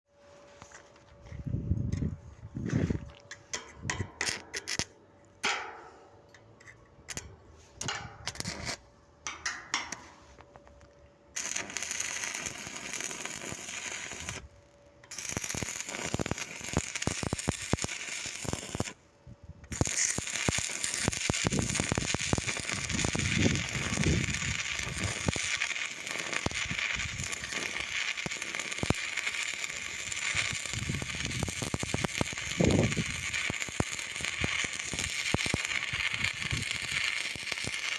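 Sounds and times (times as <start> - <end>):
welding arc crackling: 11.4 - 19.0, 19.7 - 37.9.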